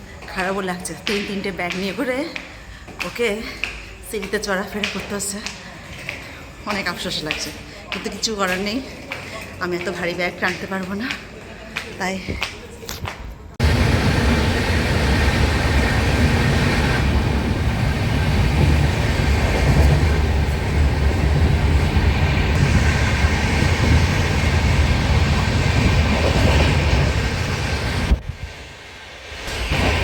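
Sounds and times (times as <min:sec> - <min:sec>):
train rumbling on rails: 0:13.6 - 0:30.0.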